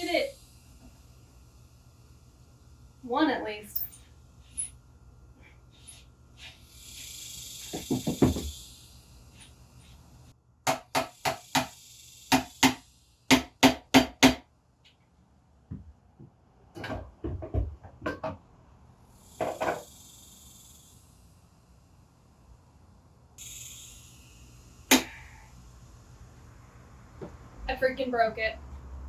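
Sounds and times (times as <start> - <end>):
hiss: 0.0 - 4.8, 5.4 - 14.4, 19.0 - 27.2.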